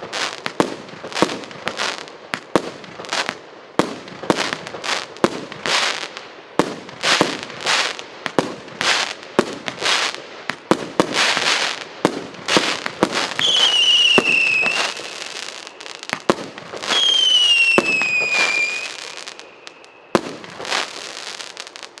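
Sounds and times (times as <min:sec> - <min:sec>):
firework bursts crackling: 0:00.0 - 0:22.0
falling firework whistle: 0:12.5 - 0:22.0.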